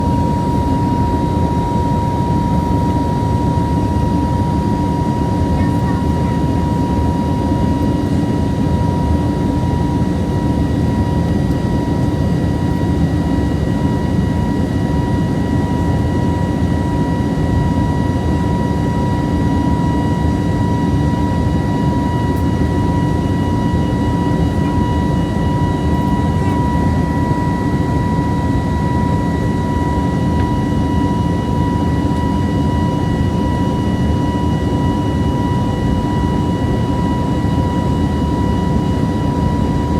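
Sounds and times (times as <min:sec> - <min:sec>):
steady high whine: 0:00.0 - 0:13.4
jet cabin engine drone: 0:00.0 - 0:39.9.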